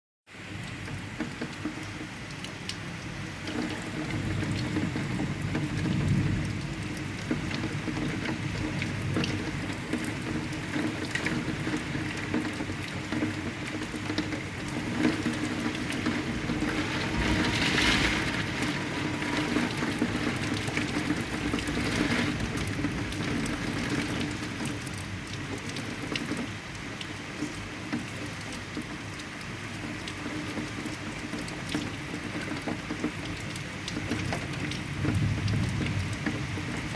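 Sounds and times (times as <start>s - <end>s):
heavy rain: 0.3s - 36.9s
thunder rumble: 3.5s - 12.2s, 13.7s - 24.5s, 34.9s - 36.9s.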